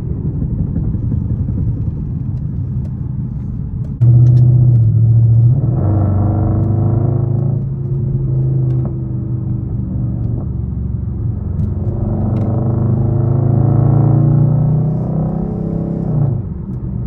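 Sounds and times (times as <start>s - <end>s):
deep exhaust rumble: 0.0s - 17.0s.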